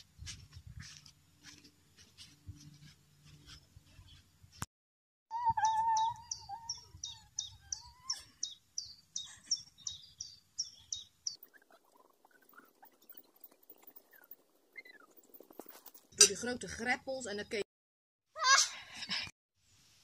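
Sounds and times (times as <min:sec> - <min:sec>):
small bird chirping: 0:05.3 - 0:16.2
faint scattered chirps: 0:05.4 - 0:16.2.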